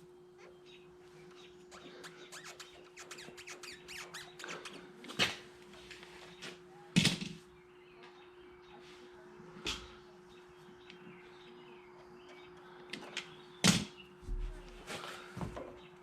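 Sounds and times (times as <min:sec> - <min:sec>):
rubber hose squeaking: 0:01.7 - 0:05.3.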